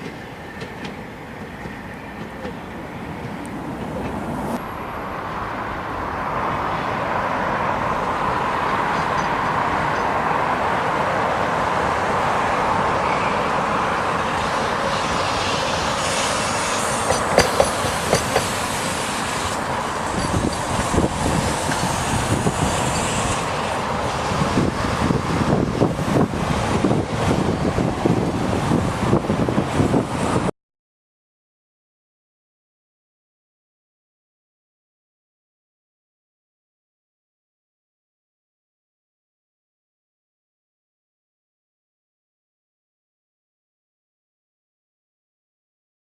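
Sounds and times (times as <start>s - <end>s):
wheels clacking over rail joints: 0.0s - 4.6s, 7.9s - 10.6s, 12.8s - 30.5s
tram wheels rumbling on rails: 0.0s - 30.5s.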